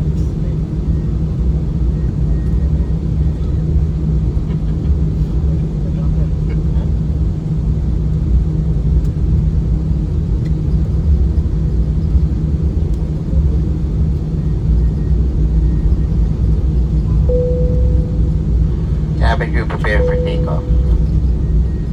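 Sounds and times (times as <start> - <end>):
aircraft engine rumble: 0.0 - 21.9
cabin chime: 17.3 - 18.8.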